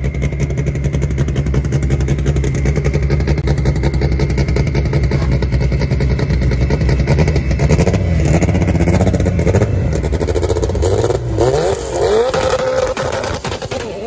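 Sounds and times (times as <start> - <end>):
car engine revving with crackle: 0.0 - 14.0.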